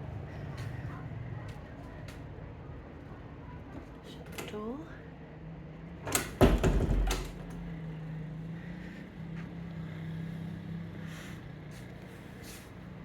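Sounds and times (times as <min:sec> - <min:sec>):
door shutting with heavy thud: 0:06.1 - 0:07.7.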